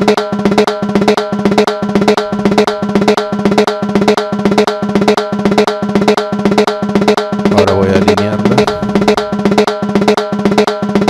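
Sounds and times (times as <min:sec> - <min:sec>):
metallic drum strikes: 0:07.4 - 0:10.0.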